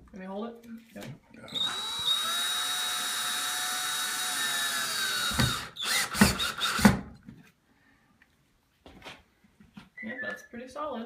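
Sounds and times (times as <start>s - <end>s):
short loud drill bursts: 1.5s - 6.9s
power drill driving a screw: 1.5s - 7.0s.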